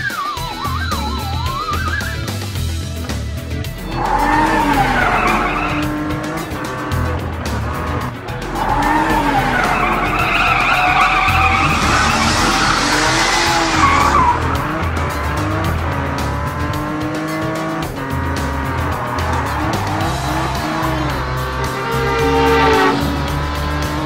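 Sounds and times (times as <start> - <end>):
background music: 0.0 - 24.0
tyre screech: 0.0 - 24.0
cartoon engine revving: 3.8 - 24.0.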